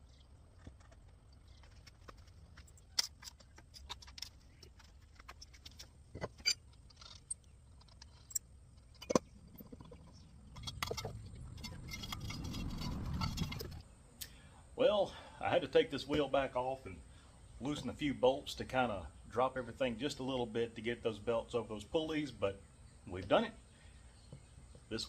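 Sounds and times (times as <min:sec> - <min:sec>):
low rumbling: 0:09.2 - 0:14.0.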